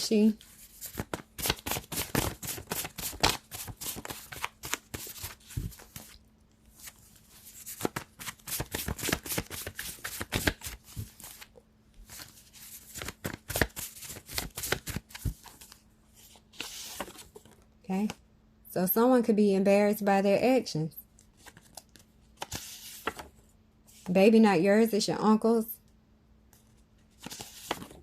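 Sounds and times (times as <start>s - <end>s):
faint steady hum: 0.0s - 28.0s
playing cards shuffling: 0.6s - 6.2s, 6.8s - 11.5s, 12.1s - 17.5s, 27.2s - 28.0s.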